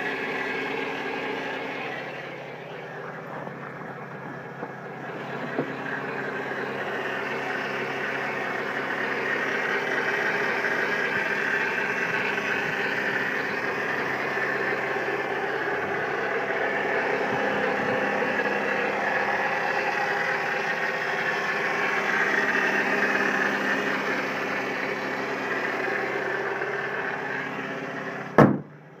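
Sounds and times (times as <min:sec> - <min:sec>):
car engine running: 0:00.0 - 0:29.0
sharp knock: 0:28.4 - 0:28.8.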